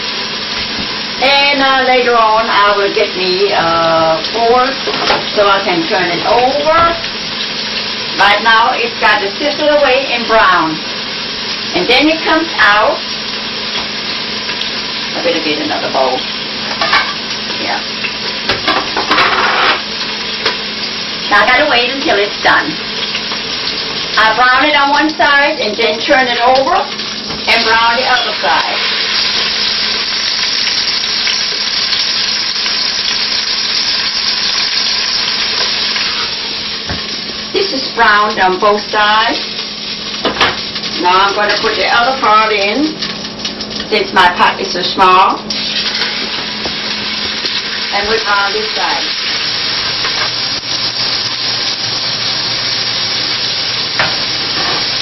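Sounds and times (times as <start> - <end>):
meat sizzling in hot oil: 0.0 - 55.0.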